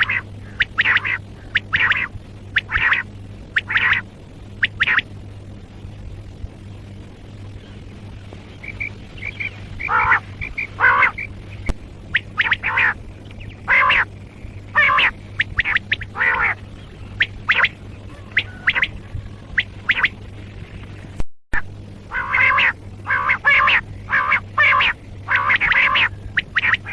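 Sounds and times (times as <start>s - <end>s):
quail calling: 0.0s - 5.0s, 8.6s - 20.2s, 22.1s - 26.9s
faint low hum: 0.0s - 26.9s.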